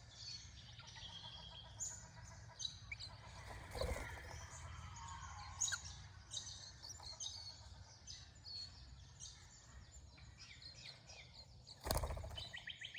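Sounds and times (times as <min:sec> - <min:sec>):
birds chirping: 0:11.7 - 0:12.9.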